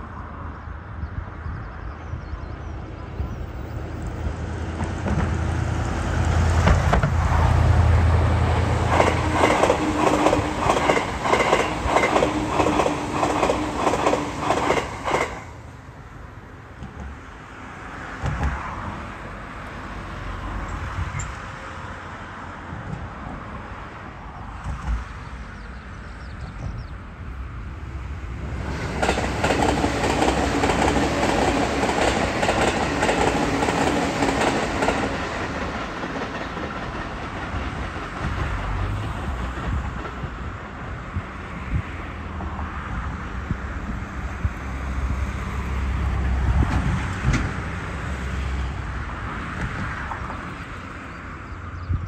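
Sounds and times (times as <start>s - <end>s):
electric trains passing: 0.0s - 52.0s
train wheels clacking: 8.6s - 15.5s, 28.8s - 40.6s.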